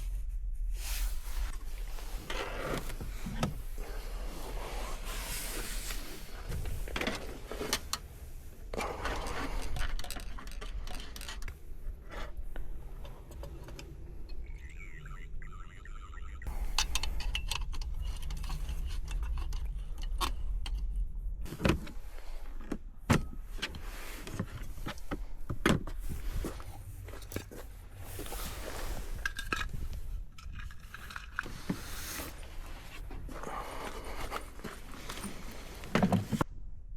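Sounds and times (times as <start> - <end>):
rustling: 0.0 - 14.6, 23.4 - 36.5
low steady rumble: 0.0 - 36.9.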